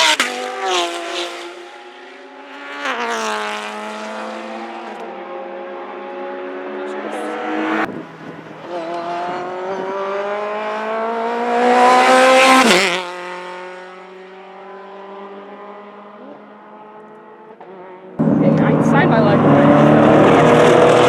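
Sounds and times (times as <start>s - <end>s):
race car passing by: 0.0s - 21.0s.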